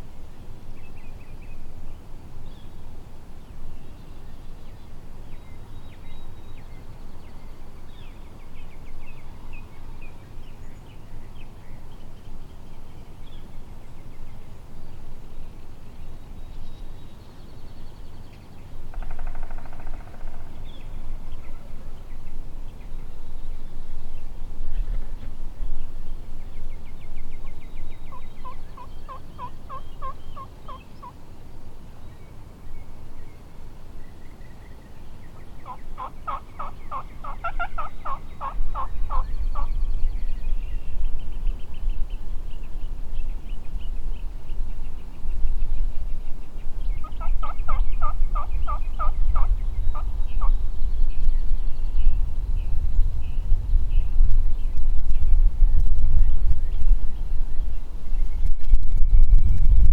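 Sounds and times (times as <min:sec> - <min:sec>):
turkey gobbling: 0:28.4 - 0:31.1, 0:35.6 - 0:39.7, 0:47.1 - 0:50.0.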